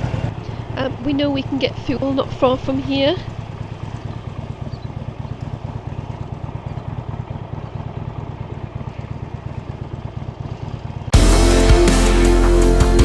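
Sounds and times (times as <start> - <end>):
motorcycle engine idling: 0.0 - 13.0
rock music with electric guitar: 11.2 - 13.0.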